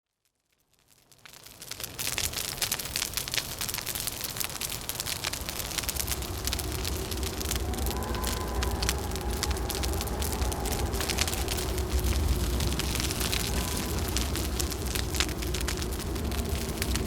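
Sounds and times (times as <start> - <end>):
wood fire crackling: 0.2 - 17.0
low wind rumble: 4.2 - 17.0
howling wind whistling: 4.8 - 17.0.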